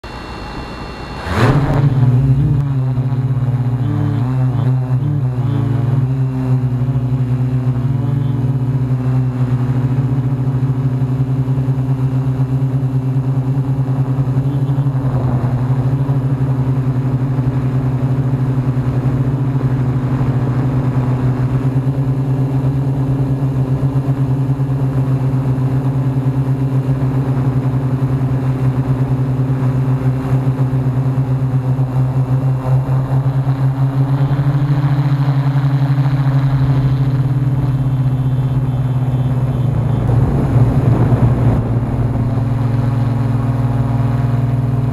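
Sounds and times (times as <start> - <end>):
drone propellers humming: 0.0 - 44.9
wind buffeting microphone: 14.0 - 22.1, 31.8 - 44.9.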